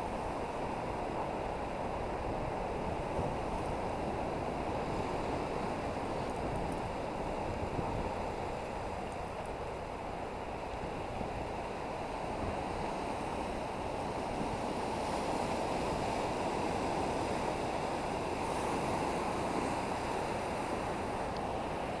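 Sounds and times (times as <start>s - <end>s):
wind on microphone: 0.0s - 9.9s
ocean waves: 0.0s - 22.0s.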